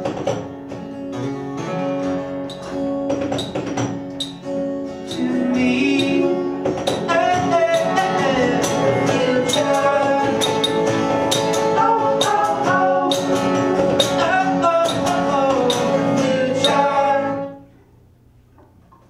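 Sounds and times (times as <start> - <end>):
strummed acoustic guitar: 0.0 - 17.7
person singing: 5.0 - 17.6.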